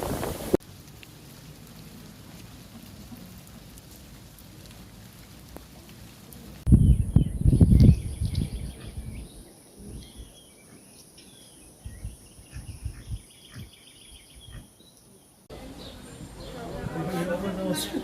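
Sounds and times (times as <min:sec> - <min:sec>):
small birds chirping: 0:06.4 - 0:16.9.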